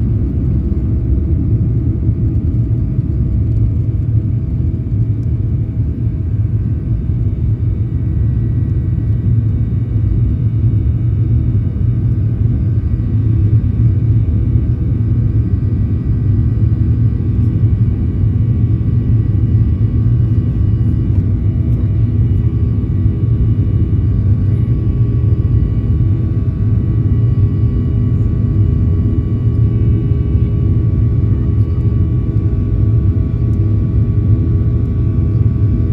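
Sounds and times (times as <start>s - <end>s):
airplane cabin engine rumble: 0.0s - 35.9s.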